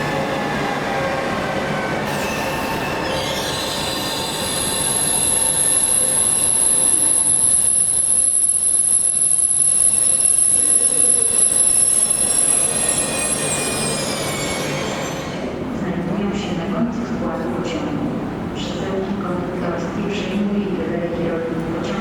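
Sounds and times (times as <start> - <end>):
rumble of moving train: 0.0 - 22.0
train wheels squealing: 2.0 - 15.6.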